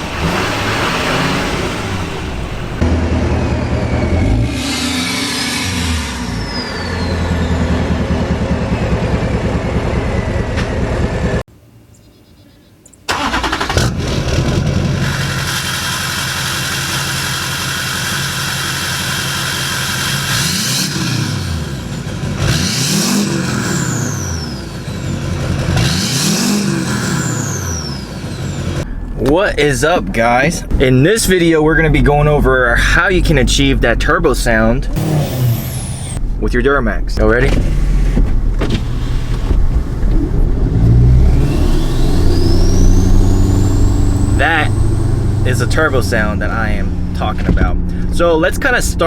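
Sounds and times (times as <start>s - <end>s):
diesel truck engine revving: 0.0s - 11.5s, 13.1s - 49.0s
high-pitched turbo whistle: 3.8s - 7.9s, 41.6s - 45.0s.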